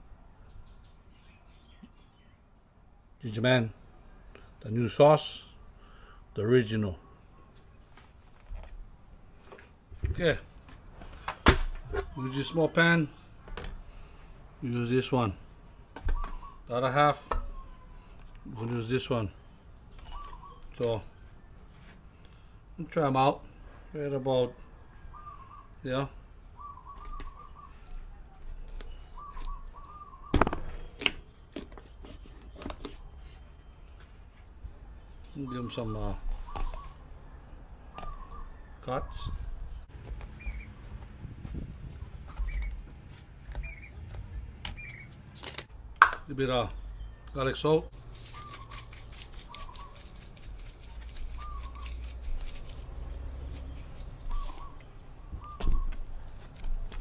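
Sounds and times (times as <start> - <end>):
bird warbling: 16.0 - 16.7, 20.0 - 20.7, 26.6 - 28.0, 29.0 - 30.9, 35.3 - 37.0, 48.2 - 52.7, 53.6 - 56.0
salt shaker rattling: 48.0 - 54.1.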